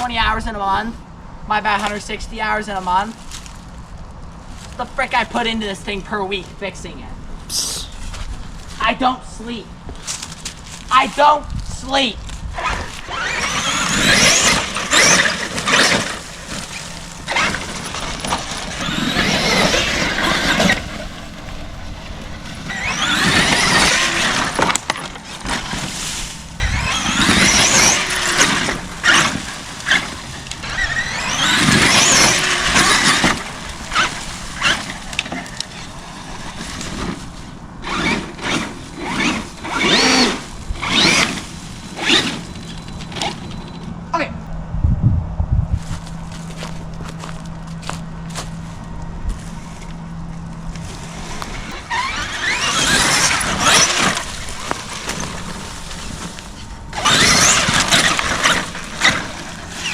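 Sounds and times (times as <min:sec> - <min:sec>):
toy truck clatter over rough ground: 0:12.2 - 0:44.1, 0:46.0 - 0:59.9
electric motor whining: 0:12.4 - 0:44.1, 0:46.2 - 0:59.9.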